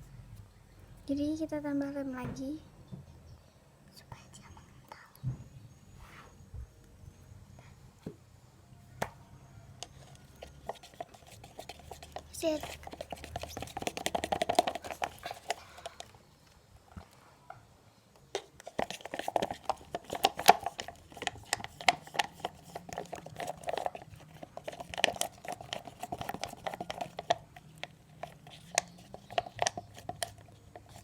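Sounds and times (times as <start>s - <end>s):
spoon stirring sticky slime: 9.8s - 16.1s, 18.4s - 31.0s.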